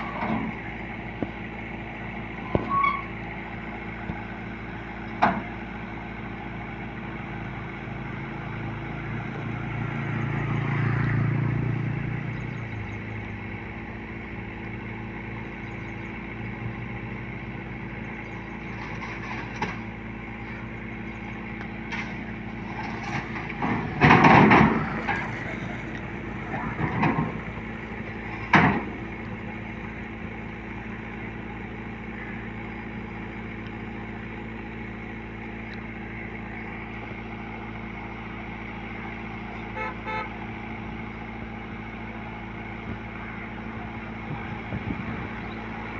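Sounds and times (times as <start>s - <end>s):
loud knocks and clatters: 21.9s - 25.7s, 26.4s - 29.1s.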